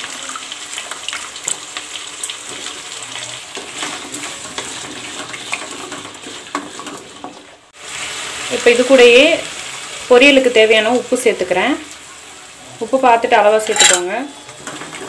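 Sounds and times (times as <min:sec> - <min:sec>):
vegetables sizzling in hot oil: 0:00.0 - 0:15.0
wooden spatula scraping a pan: 0:03.5 - 0:07.5.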